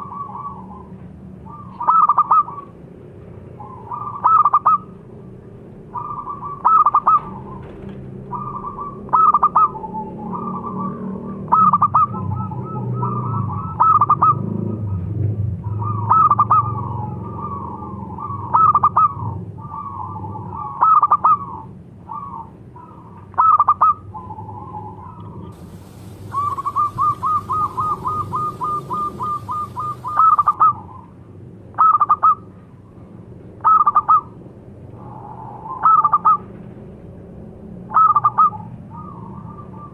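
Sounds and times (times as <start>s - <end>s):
doves cooing: 6.0s - 12.1s, 19.8s - 30.8s.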